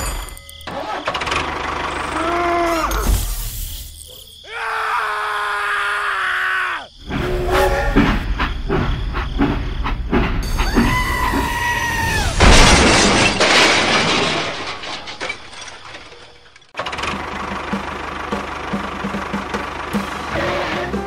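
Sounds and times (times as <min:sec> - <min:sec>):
loud crash with shattering: 0:10.5 - 0:16.8
rapid clicking train chugging: 0:16.8 - 0:21.0.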